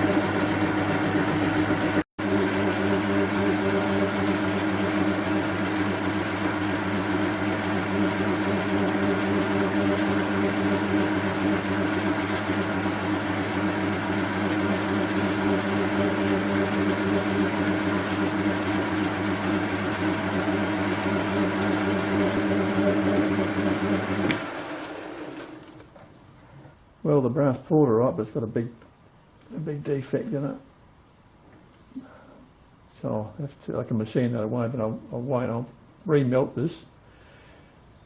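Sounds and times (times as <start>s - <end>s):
metal lathe motor hum: 0.0s - 25.6s.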